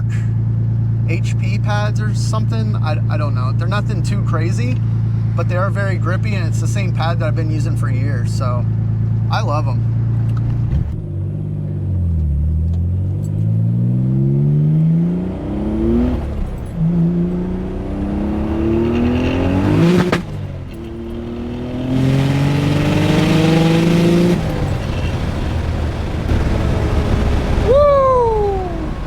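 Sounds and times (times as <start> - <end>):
car engine pulling hard: 0.0 - 29.0
sharp crack: 18.9 - 20.9.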